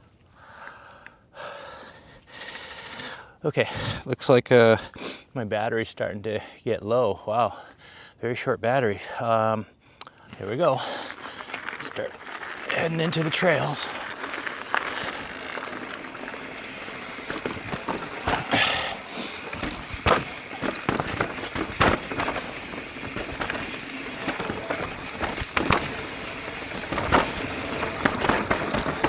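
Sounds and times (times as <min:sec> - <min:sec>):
bike tyres rolling on dirt: 0:10.3 - 0:29.0
bike knocking over bumps: 0:11.1 - 0:29.0.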